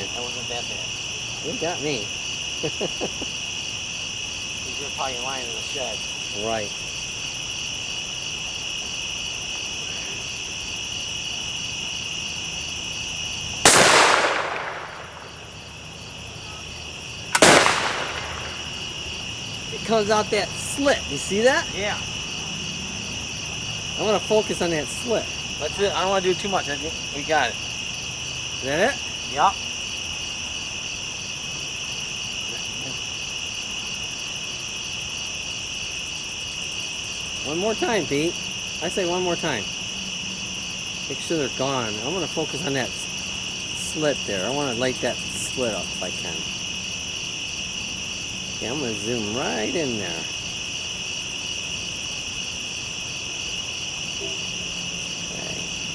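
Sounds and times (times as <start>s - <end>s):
crickets trilling: 0.0s - 55.9s
insects chirping: 0.0s - 55.9s
gas explosion bang: 13.7s - 15.6s, 17.4s - 19.0s.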